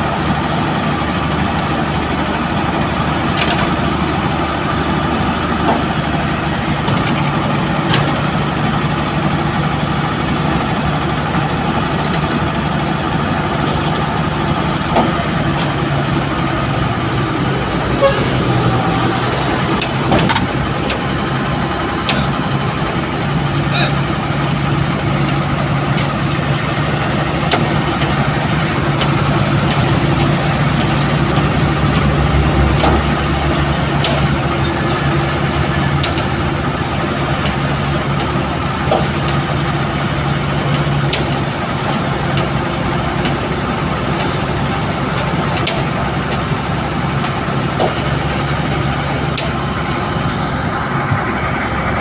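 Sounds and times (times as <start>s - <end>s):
road and traffic noise: 0.0s - 52.0s
truck engine humming: 0.0s - 52.0s.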